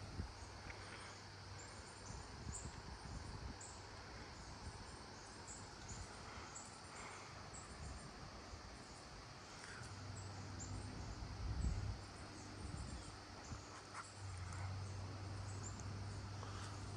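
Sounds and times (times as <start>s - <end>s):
wind rumbling on microphone: 0.0s - 0.9s, 1.6s - 6.6s, 10.1s - 16.9s
insects chirping: 0.0s - 16.9s.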